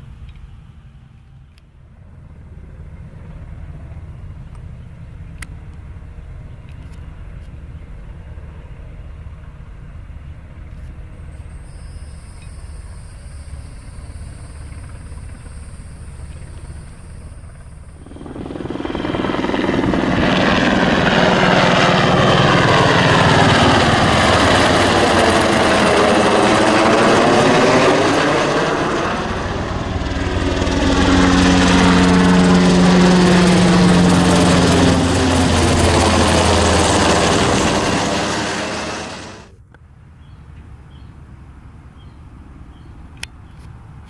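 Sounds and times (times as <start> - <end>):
helicopter flying past: 13.6 - 39.5.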